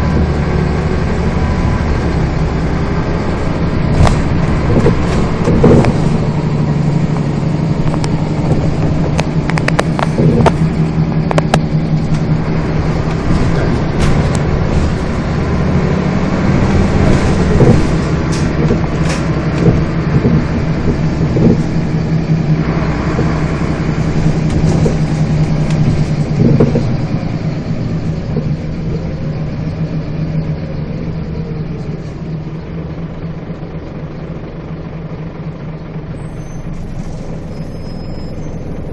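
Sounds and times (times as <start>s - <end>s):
bus engine running: 0.0s - 38.9s
rattles and knocks from bus body: 3.3s - 29.1s.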